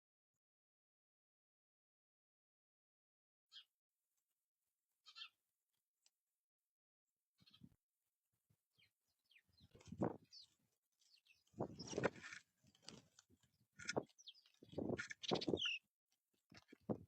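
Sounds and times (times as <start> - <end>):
songbirds chirping: 5.0 - 5.4, 7.4 - 7.8, 8.7 - 17.0.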